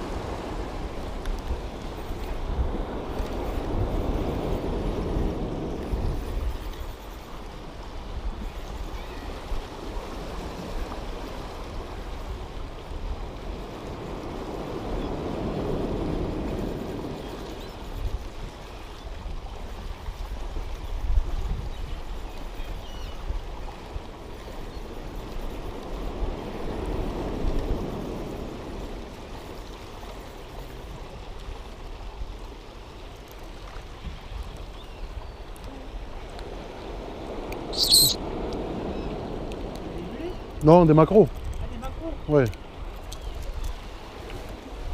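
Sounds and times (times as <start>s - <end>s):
sea surf washing: 0.0s - 18.0s, 35.4s - 44.9s
wind rumble on microphone: 0.0s - 44.9s.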